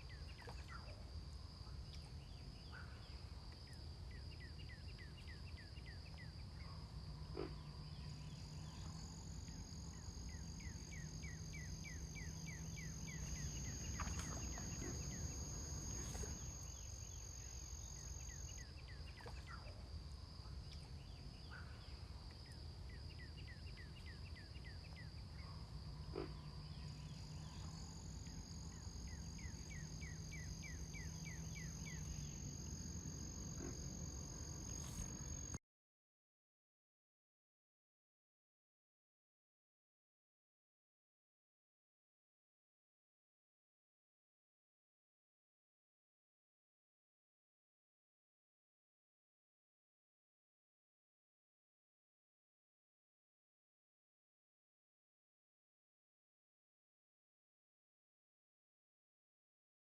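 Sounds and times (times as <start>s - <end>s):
low hum: 7.2s - 18.6s.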